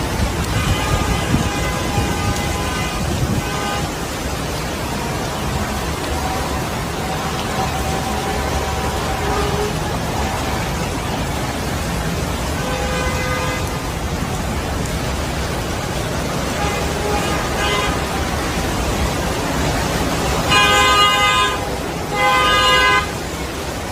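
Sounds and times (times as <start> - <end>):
street noise: 0.0 - 23.9
car horns honking: 0.4 - 4.2, 4.8 - 11.2, 12.5 - 13.8, 16.4 - 23.3.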